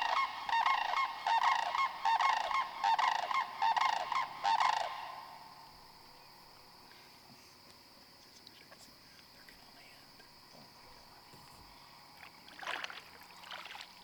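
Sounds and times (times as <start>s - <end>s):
cranes bugle calls: 0.0s - 5.5s
insects chirring: 0.0s - 14.0s.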